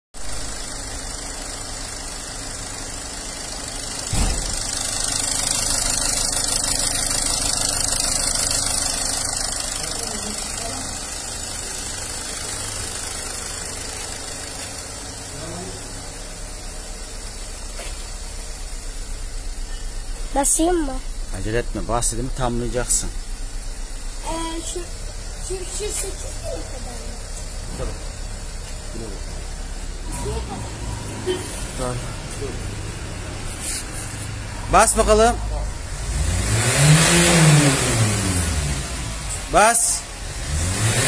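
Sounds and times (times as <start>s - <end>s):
diesel engine idling: 0.2s - 41.0s
thump: 4.1s - 4.7s.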